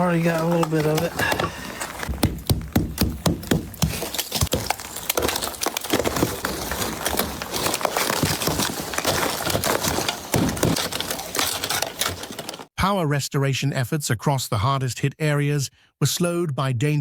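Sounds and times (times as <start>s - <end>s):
icy branches cracking: 0.0s - 12.7s.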